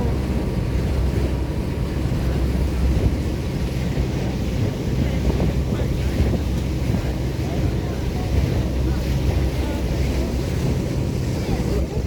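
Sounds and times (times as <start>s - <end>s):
boat engine rumble: 0.0s - 12.0s
wind buffeting microphone: 0.0s - 12.0s.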